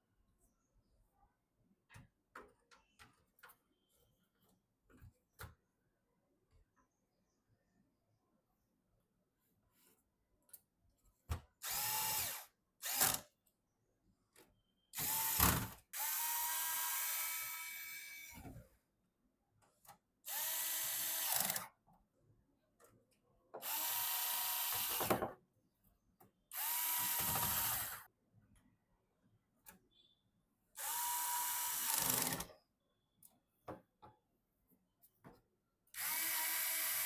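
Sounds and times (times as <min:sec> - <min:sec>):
electric screwdriver motor whining: 0:11.6 - 0:13.2, 0:26.6 - 0:28.0, 0:36.0 - 0:37.0.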